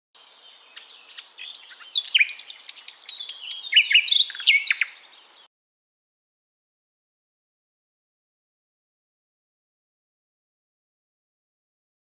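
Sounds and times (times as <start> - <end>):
small bird chirping: 0.2 - 5.5.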